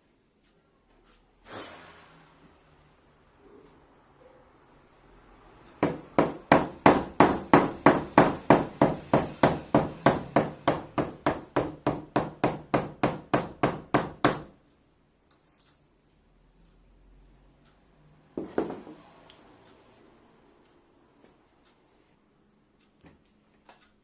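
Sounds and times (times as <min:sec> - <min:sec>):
hammer striking rhythmically: 0:05.8 - 0:14.5.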